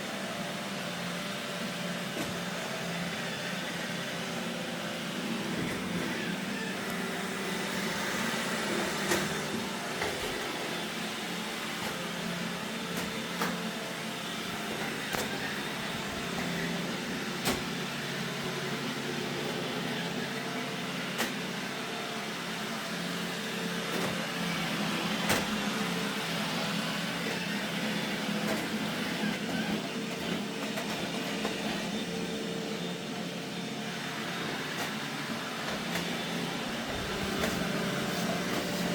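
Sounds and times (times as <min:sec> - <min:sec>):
robot vacuum motor hum: 0:00.0 - 0:38.9.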